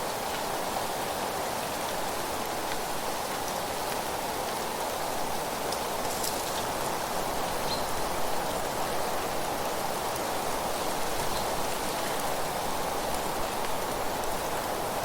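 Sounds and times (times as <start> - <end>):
leaves rustling: 5.7 - 7.1.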